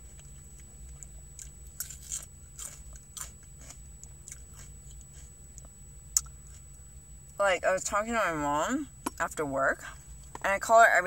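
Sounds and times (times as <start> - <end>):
chewing crunchy vegetable: 0.0 - 6.7
steady low hum: 0.0 - 11.0.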